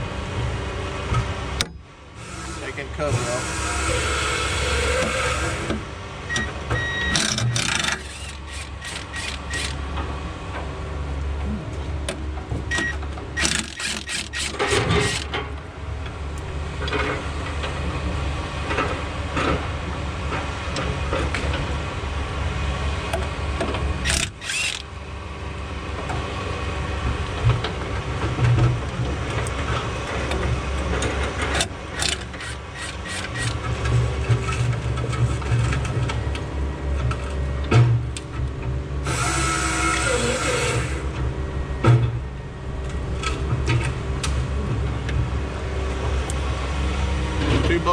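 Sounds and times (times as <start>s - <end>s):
low engine hum: 0.0s - 47.9s.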